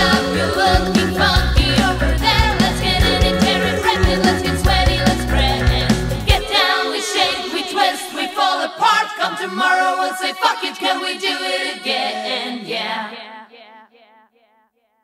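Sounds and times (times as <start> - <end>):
choir singing a cappella: 0.0 - 14.0.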